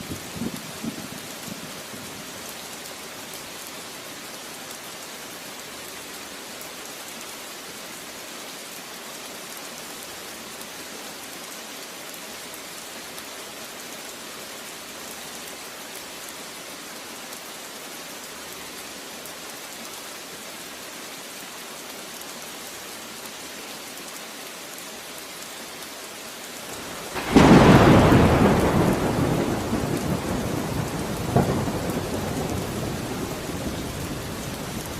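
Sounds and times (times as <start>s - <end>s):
steady rain falling: 0.0s - 34.9s
loud thunderclap rumbling: 26.8s - 34.9s.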